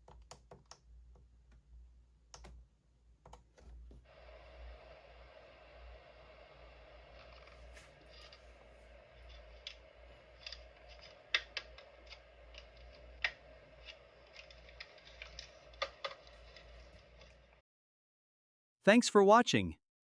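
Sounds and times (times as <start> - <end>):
faint steady hum: 0.2 - 17.6.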